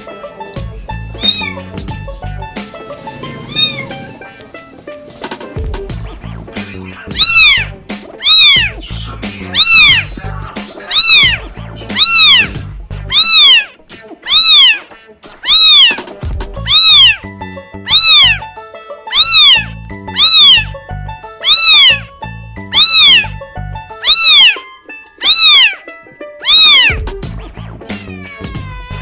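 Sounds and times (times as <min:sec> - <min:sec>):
kitten meowing: 0:01.2 - 0:01.7, 0:03.3 - 0:04.2, 0:07.2 - 0:08.8, 0:09.6 - 0:10.1, 0:10.9 - 0:11.4, 0:12.0 - 0:12.5, 0:13.1 - 0:16.0, 0:16.7 - 0:17.2, 0:17.9 - 0:18.5, 0:19.1 - 0:20.8, 0:21.4 - 0:22.1, 0:22.7 - 0:23.4, 0:24.0 - 0:27.0, 0:27.9 - 0:29.0.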